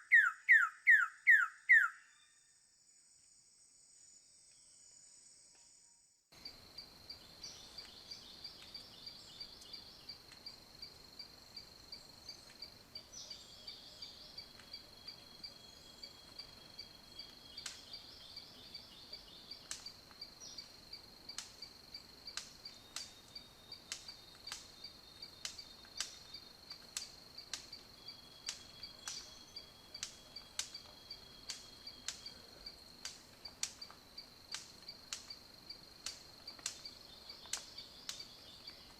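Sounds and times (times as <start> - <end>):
insects trilling: 6.4 - 38.9
sharp clicks: 36.0 - 36.9.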